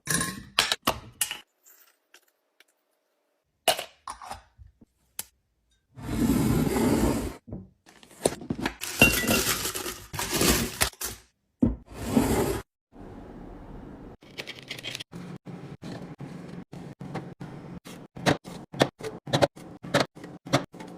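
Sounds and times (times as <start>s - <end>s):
glass containers clinking: 8.8s - 10.4s.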